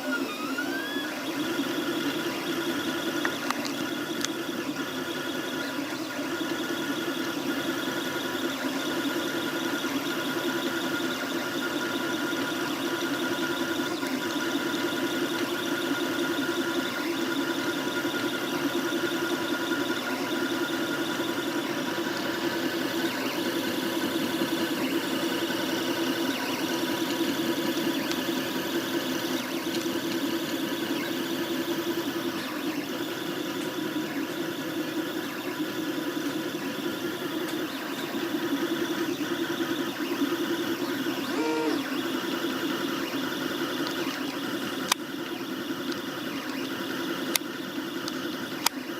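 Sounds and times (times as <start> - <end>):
stepper motors whining: 0.0 - 48.9
fluttering high tones: 41.2 - 41.9.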